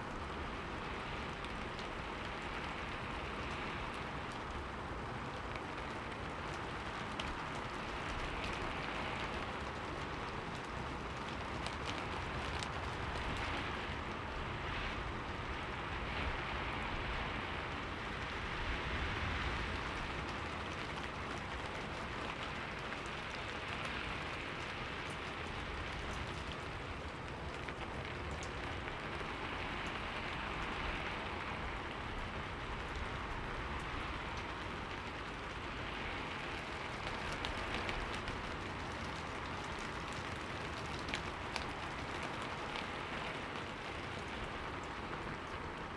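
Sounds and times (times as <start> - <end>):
rain pattering on a window: 0.0 - 45.9.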